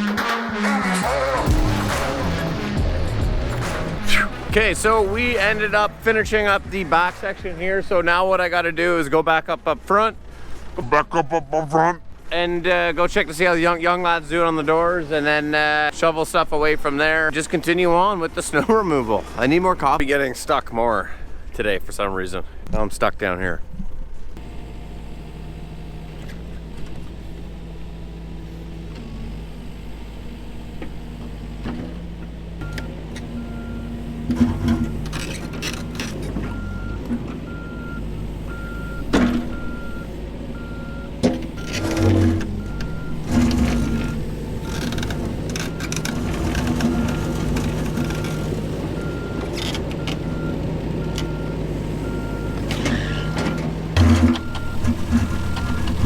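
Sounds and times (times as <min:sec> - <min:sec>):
diesel engine running: 0:00.0 - 0:20.1, 0:24.4 - 0:56.0
reversing alarm beeping: 0:32.6 - 0:56.0.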